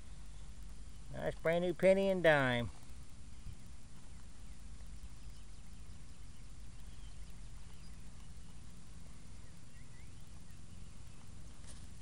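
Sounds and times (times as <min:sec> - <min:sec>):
low outdoor rumble: 0:00.0 - 0:12.0
faint high chirps: 0:03.2 - 0:12.0.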